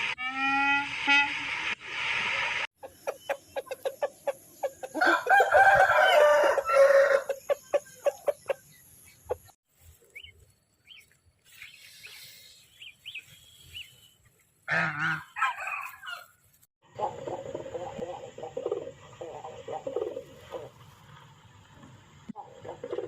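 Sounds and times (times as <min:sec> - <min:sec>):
chickens clucking: 0:02.8 - 0:05.8, 0:07.0 - 0:09.6, 0:16.8 - 0:20.9, 0:22.3 - 0:23.0
rooster crowing: 0:04.9 - 0:07.4.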